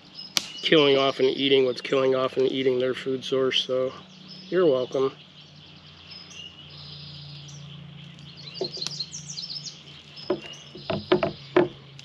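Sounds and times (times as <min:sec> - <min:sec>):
wild birds chirping: 0:00.0 - 0:12.0
sharp knocks: 0:10.3 - 0:11.8.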